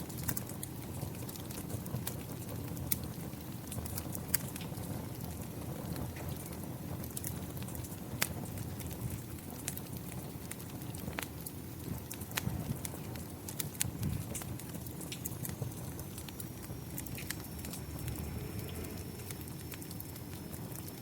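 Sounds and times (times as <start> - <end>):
wood fire crackling: 0.0 - 21.0
rain rushing: 11.9 - 21.0.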